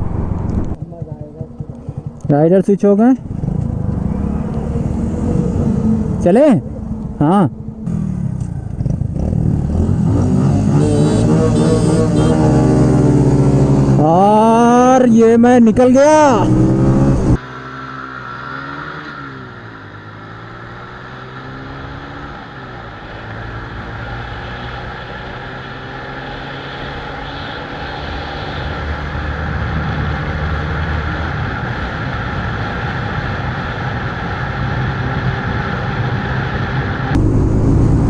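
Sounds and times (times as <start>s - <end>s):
wind rushing: 0.0s - 0.8s
motorcycle engine running: 0.0s - 14.7s, 29.6s - 38.0s.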